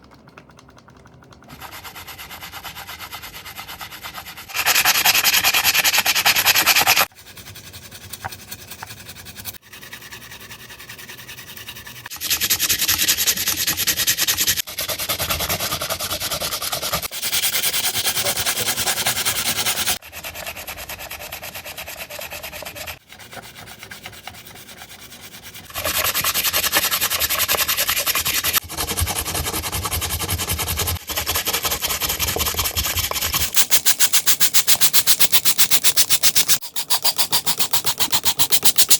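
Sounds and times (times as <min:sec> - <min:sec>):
scrubbing and rubbing: 0:00.9 - 0:38.9.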